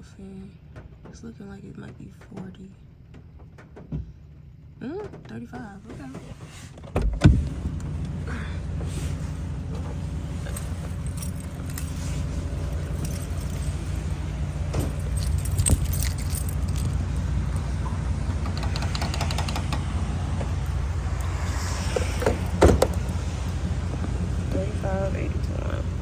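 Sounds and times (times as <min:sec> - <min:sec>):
low rumble: 0:07.4 - 0:26.0
metal jingle: 0:07.9 - 0:23.9
metallic clicks: 0:10.4 - 0:21.3.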